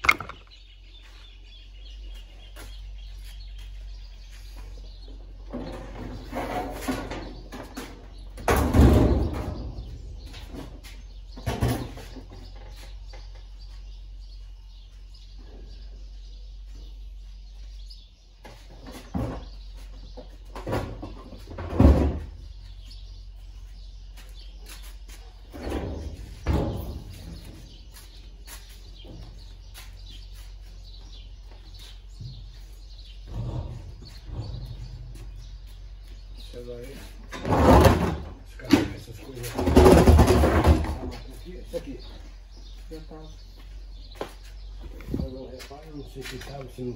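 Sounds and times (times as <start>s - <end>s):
hard parts knocking and clunking: 0.0s - 0.6s, 37.2s - 41.4s.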